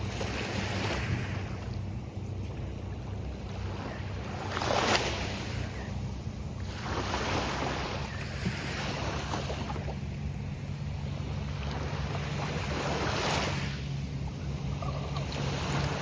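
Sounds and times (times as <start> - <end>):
surf waves breaking on beach: 0.0 - 16.0
wind rumble on microphone: 0.0 - 16.0.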